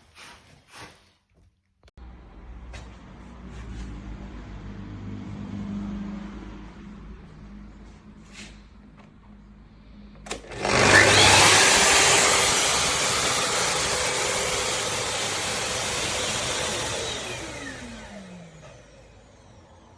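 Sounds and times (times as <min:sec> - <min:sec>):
vacuum cleaner motor running: 0:10.2 - 0:19.9.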